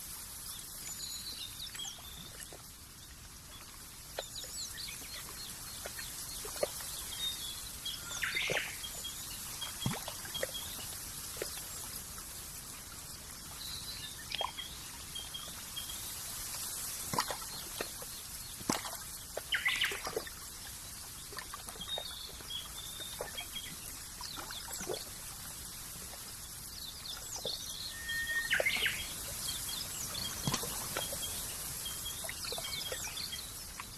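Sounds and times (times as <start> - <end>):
steady hiss: 0.0 - 2.0, 2.6 - 21.4, 23.3 - 33.9
small birds chirping: 3.6 - 11.8, 26.9 - 33.9.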